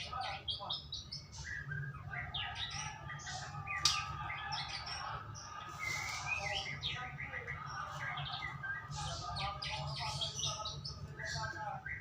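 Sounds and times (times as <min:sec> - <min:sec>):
bird singing whistles and trills: 0:00.3 - 0:05.0.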